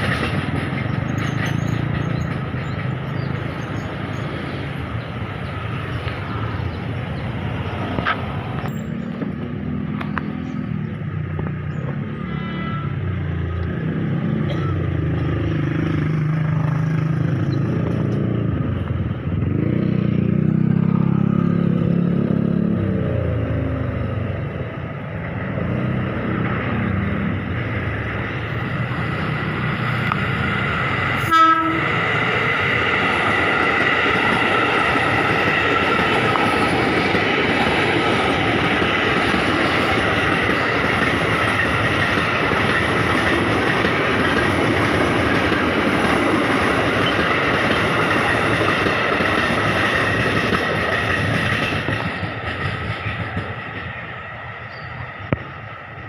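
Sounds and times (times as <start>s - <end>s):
train wheels rushing on rail: 0.0s - 56.0s
road vehicle engine passing: 1.0s - 51.4s
sharp horn blast: 12.2s - 13.1s, 31.2s - 32.0s.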